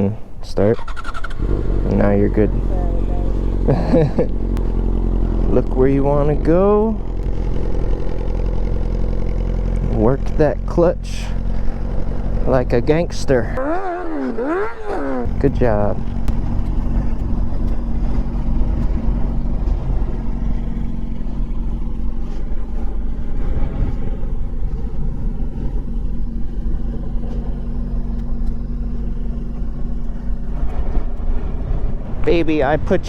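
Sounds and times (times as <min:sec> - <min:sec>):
motorcycle engine at low revs: 0:00.0 - 0:33.0
wind rumble on microphone: 0:15.2 - 0:33.0.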